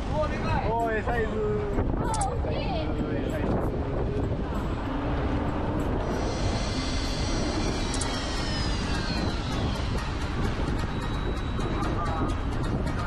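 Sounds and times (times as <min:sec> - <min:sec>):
wind noise: 0:00.0 - 0:13.0
low rumble: 0:01.4 - 0:13.0
high whine falling in pitch: 0:04.6 - 0:13.0.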